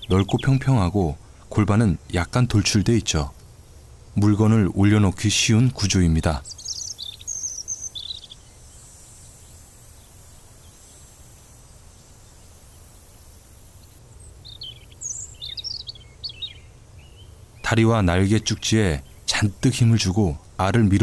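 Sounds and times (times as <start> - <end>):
faint high bird chirps: 5.8 - 11.1, 12.3 - 19.4.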